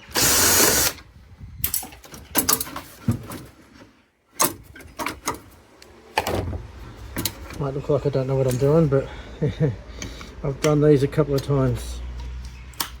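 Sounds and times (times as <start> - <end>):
loud burst of noise: 0.0 - 1.0.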